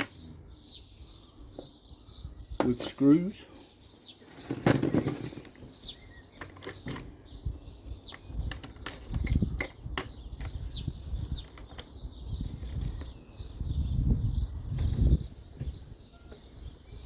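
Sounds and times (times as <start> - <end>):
plastic parts clicking: 6.3 - 7.1, 8.1 - 10.6, 11.2 - 12.0.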